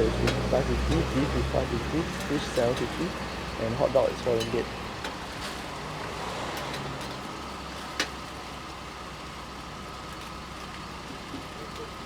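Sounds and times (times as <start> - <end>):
road traffic passing: 0.0 - 9.3.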